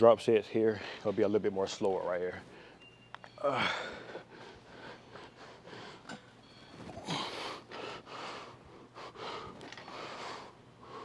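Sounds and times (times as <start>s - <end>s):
man breathing hard: 3.4s - 6.3s, 6.9s - 11.0s.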